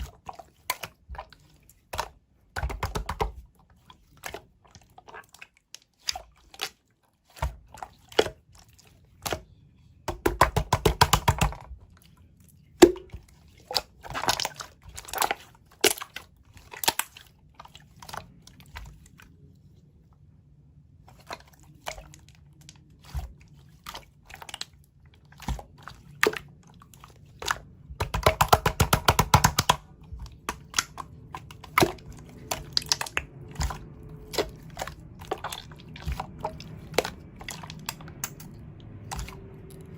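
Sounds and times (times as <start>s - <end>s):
slime squished by hand: 21.1s - 39.9s.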